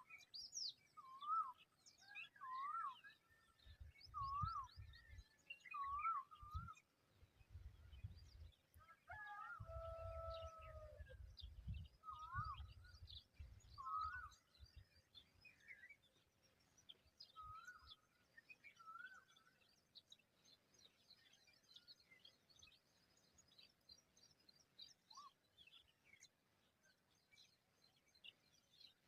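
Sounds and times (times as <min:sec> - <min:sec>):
fluty whistled birdsong: 0:00.0 - 0:06.9, 0:07.6 - 0:29.0
low wind rumble: 0:09.6 - 0:13.7.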